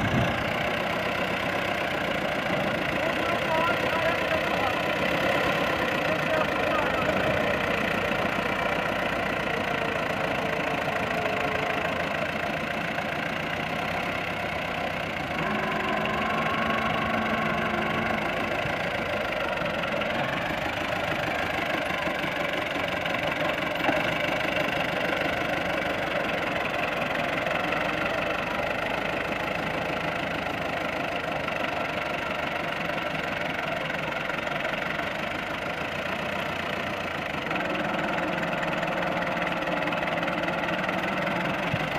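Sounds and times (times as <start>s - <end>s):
diesel tractor engine running: 0.0s - 41.9s
short steady tone: 15.3s - 18.9s.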